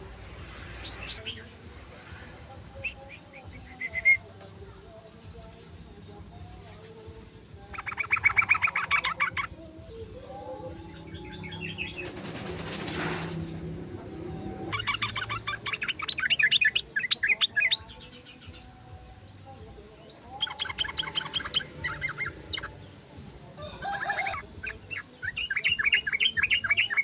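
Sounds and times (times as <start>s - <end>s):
bird singing bubbling notes: 7.7s - 9.5s, 20.4s - 22.8s.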